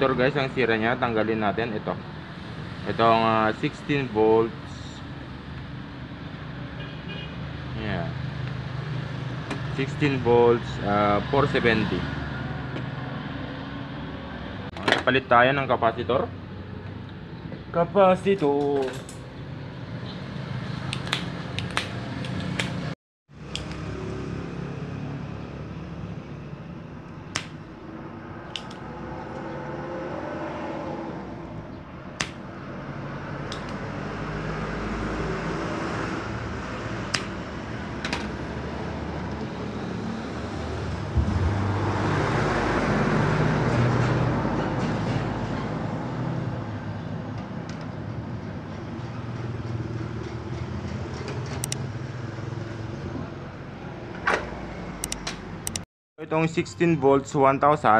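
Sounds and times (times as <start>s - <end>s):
small tools clicking: 28.5s - 28.8s, 55.0s - 55.8s
steady low hum: 41.0s - 42.8s.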